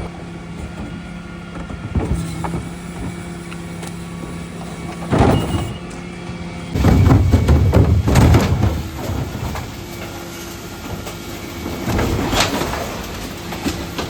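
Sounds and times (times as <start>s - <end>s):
refuse truck humming: 0.0s - 14.0s
heavy clattering: 4.2s - 14.0s.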